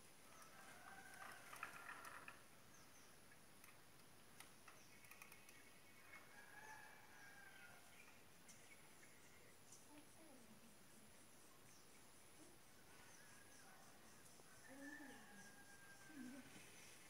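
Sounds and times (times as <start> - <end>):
faint bird calls: 11.7 - 17.0.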